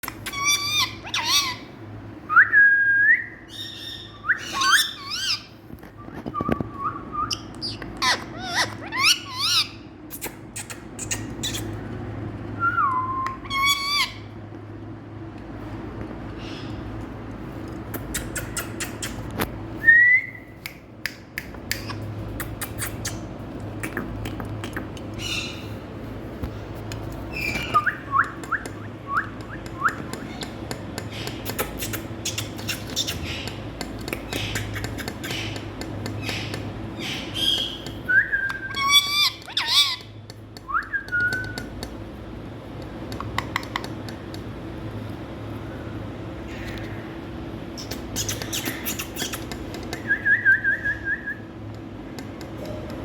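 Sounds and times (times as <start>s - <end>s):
parrot whistles and squawks: 0.0s - 1.7s, 3.5s - 5.5s, 6.1s - 11.8s, 12.6s - 14.3s, 36.2s - 40.1s
steady low hum: 0.0s - 53.0s.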